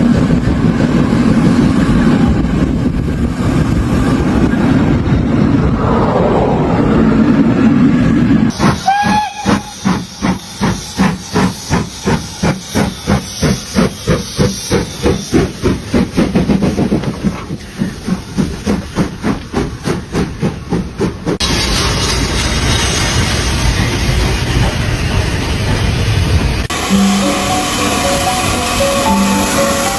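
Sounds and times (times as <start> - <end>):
steam whistle toot: 8.5 - 10.4, 26.7 - 29.9
rushing steam hiss: 8.5 - 29.9
steam locomotive exhaust chuffing: 8.5 - 29.9.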